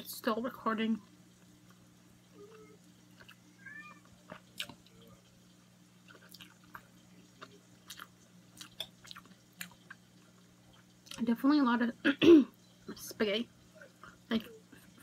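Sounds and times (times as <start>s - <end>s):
steady low hum: 0.0s - 15.0s
wet chewing and mouth clicks: 4.3s - 4.9s, 6.0s - 11.2s.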